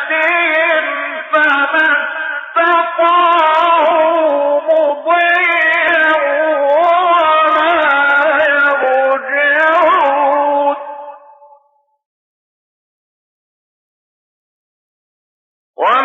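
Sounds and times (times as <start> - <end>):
man chanting melodically: 0.0 - 11.6, 15.8 - 16.0.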